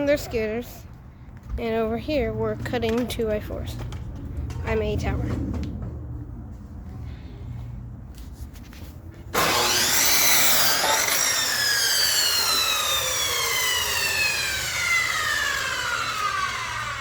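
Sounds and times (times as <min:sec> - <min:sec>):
power saw cutting wood: 0:09.3 - 0:17.0.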